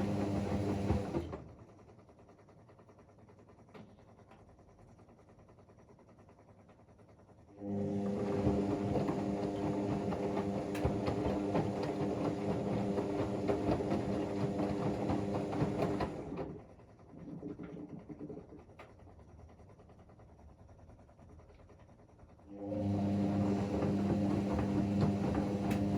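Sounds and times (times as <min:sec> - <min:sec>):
washing machine drum motor humming: 0:00.0 - 0:01.3, 0:07.6 - 0:18.6, 0:22.6 - 0:25.9
washing machine rattly ticking: 0:08.1 - 0:16.0.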